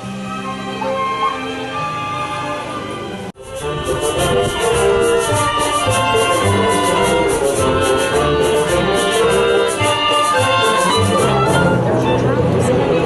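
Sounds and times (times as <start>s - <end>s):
symphony orchestra playing: 0.0s - 13.0s
quick high percussion beat: 3.4s - 11.9s.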